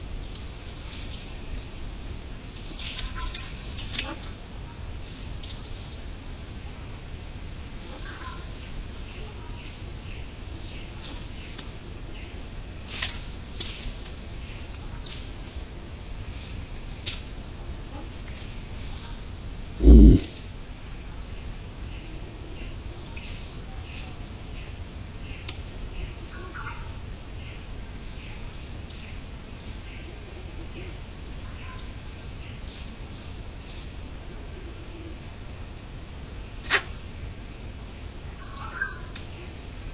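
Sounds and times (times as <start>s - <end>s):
high-pitched insect whine: 0.0s - 39.9s
insects chirping: 0.0s - 39.9s
cricket trilling: 6.3s - 13.6s, 14.2s - 32.7s, 33.4s - 39.9s.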